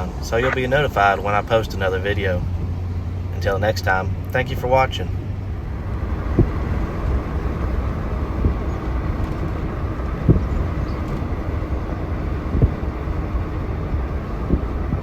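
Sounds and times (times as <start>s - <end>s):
freight train rumbling: 0.0s - 15.0s.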